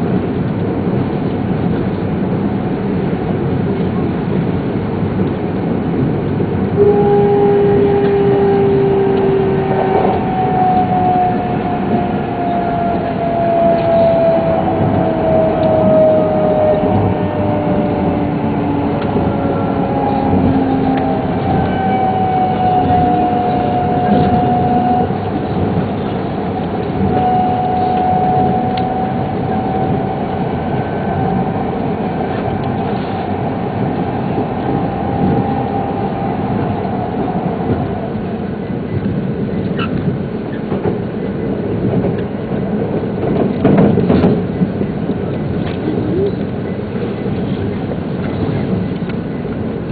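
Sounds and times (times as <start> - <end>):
high train whine: 0.0 - 49.9
lower whine: 0.0 - 49.9
train rumble: 0.0 - 49.9.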